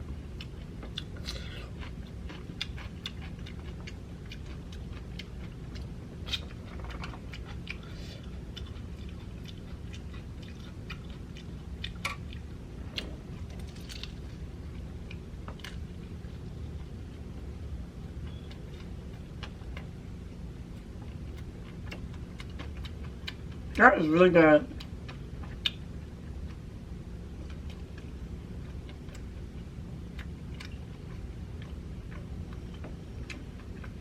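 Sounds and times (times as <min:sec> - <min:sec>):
chewing and crunching: 0:00.0 - 0:24.1, 0:24.7 - 0:34.0
low steady hum: 0:00.0 - 0:34.0.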